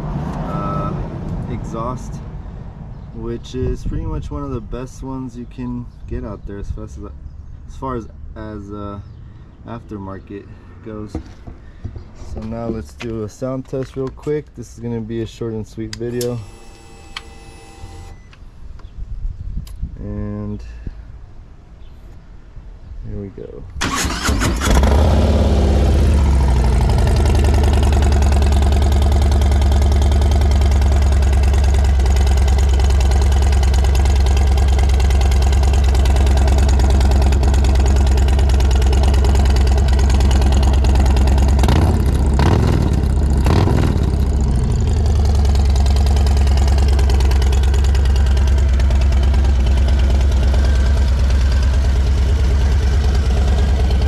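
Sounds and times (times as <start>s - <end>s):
motorcycle engine idling: 23.9s - 54.0s.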